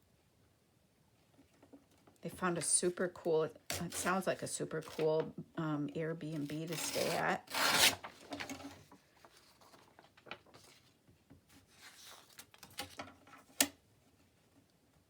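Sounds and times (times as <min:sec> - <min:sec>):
paper rustling: 0:03.9 - 0:05.3, 0:06.3 - 0:13.0.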